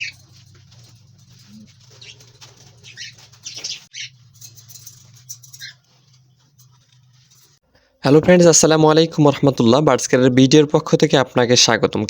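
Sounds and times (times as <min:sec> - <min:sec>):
budgerigars chirping: 0:00.0 - 0:00.5, 0:01.4 - 0:04.2, 0:05.2 - 0:05.9.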